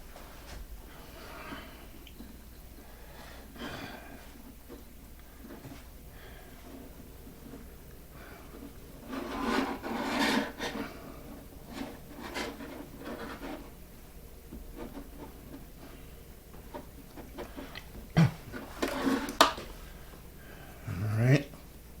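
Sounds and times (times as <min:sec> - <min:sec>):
dough scraping on crock rim: 0:08.7 - 0:19.6.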